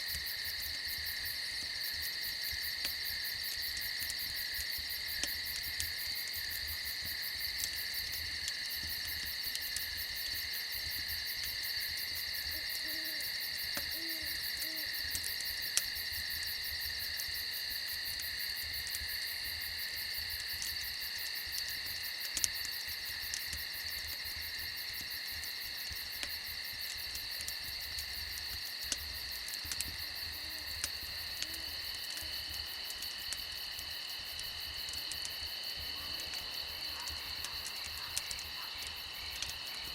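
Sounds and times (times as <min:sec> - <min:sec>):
campfire crackling: 0:00.0 - 0:39.9
crickets trilling: 0:00.0 - 0:39.9
owl hooting: 0:14.0 - 0:14.9.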